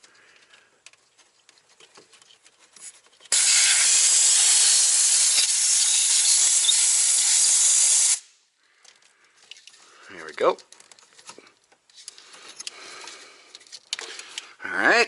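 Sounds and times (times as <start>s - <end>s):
compressed air hissing: 3.3s - 8.3s.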